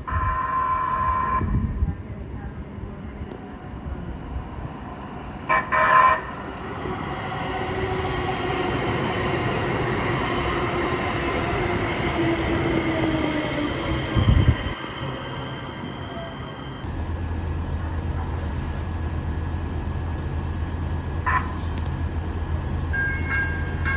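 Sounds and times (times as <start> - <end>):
train rumbling past: 1.2 - 23.9
train horn blasts: 5.5 - 6.4.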